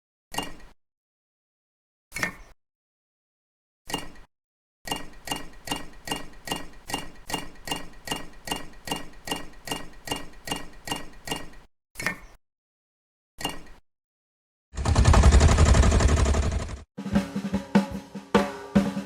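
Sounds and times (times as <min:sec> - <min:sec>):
rapid ringing taps: 0:04.9 - 0:11.7.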